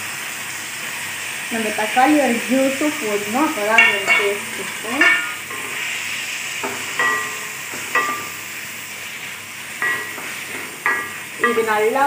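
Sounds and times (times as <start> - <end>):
onions sizzling in hot oil: 0.0 - 12.0
spatula clinking on pan: 3.7 - 5.7, 6.6 - 8.4, 9.8 - 12.0.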